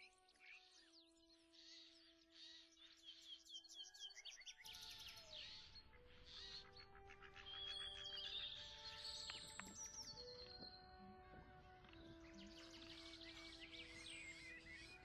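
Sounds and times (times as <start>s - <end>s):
small birds chirping and trilling: 0.0s - 15.0s
soft background music: 0.0s - 15.0s.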